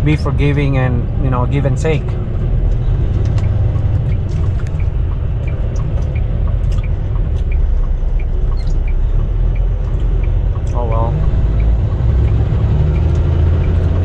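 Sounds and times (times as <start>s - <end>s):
diesel engine and road rumble: 0.0s - 14.0s.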